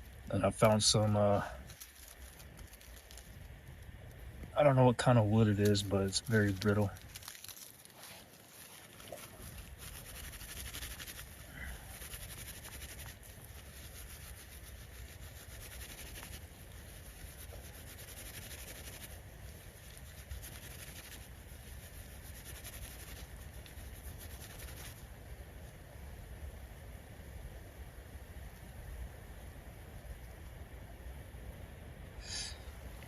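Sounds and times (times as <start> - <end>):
steady low rumble: 0.0 - 33.0
bark being scraped by hand: 6.3 - 25.0.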